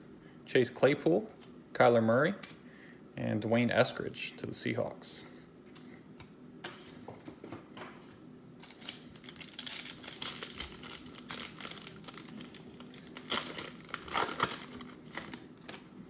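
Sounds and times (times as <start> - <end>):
foil wrapper tearing and crinkling: 8.6 - 16.0.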